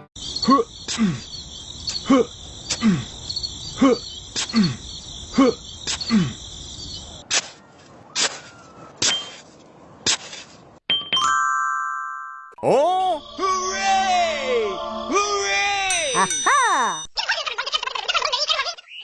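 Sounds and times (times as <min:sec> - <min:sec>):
cricket-like chirping: 0:00.2 - 0:07.2
bell-like chime: 0:11.0 - 0:12.6, 0:15.9 - 0:17.2.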